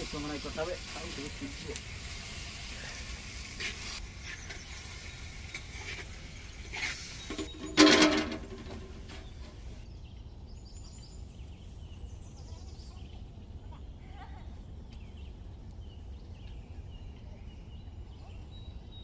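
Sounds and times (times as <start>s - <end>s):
steel plate clanking on clay pot: 7.3s - 9.4s.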